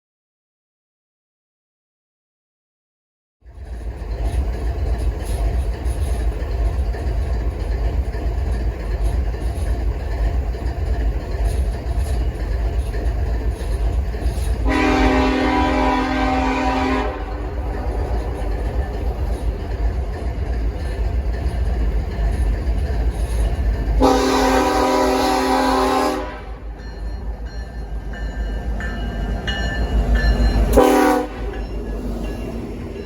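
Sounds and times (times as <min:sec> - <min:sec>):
train rumbling: 0:03.4 - 0:33.0
locomotive horn blast: 0:14.6 - 0:17.6, 0:24.0 - 0:26.7, 0:30.7 - 0:31.6.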